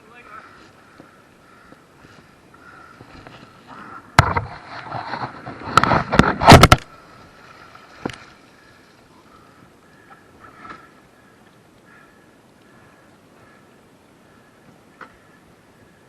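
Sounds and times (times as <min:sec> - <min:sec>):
kayak knocking and clattering: 0:04.2 - 0:06.9.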